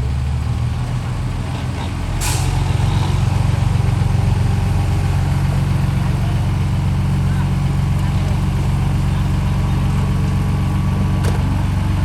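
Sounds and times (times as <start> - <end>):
diesel truck engine running: 0.0 - 12.0
air hiss: 2.2 - 2.8.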